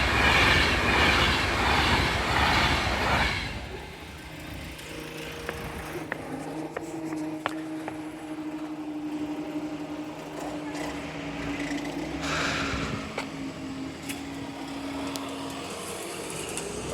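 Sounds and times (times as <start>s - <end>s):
vehicle engine humming: 0.0s - 16.9s
rush of noise: 12.1s - 13.8s.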